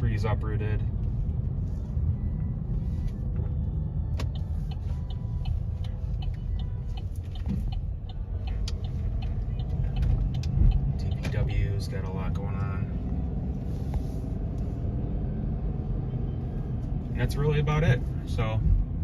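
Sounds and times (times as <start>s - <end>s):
car cabin rumble: 0.9s - 14.9s.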